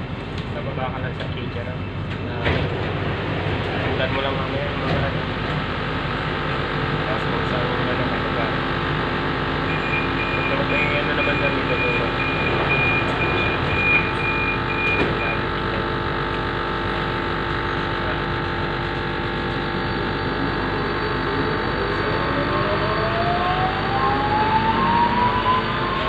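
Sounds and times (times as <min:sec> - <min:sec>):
train motor whine rising: 0:09.2 - 0:26.0
high door warning beeps: 0:09.6 - 0:15.7.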